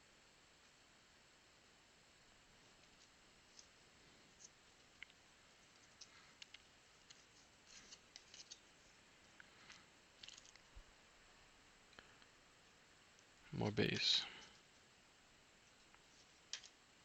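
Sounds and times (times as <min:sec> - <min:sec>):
trading cards clicking and scraping: 0:02.7 - 0:10.7.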